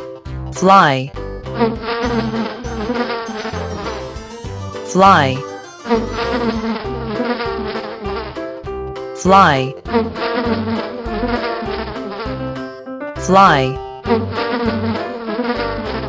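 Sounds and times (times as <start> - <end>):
housefly buzzing: 1.6 - 8.6, 9.9 - 12.6, 14.1 - 16.0.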